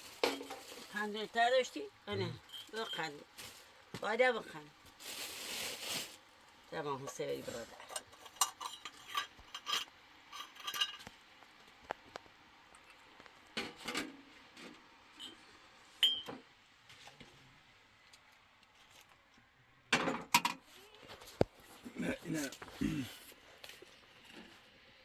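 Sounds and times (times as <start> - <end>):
utensils clinking on dishes: 7.7 - 11.1, 16.0 - 16.4
short ringing clink: 16.0 - 16.3.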